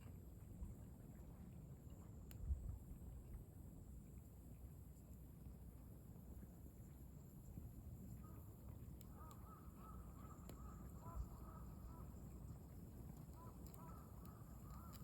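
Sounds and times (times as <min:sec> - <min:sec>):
bird calling: 0:09.1 - 0:12.2
campfire crackling: 0:12.9 - 0:15.0.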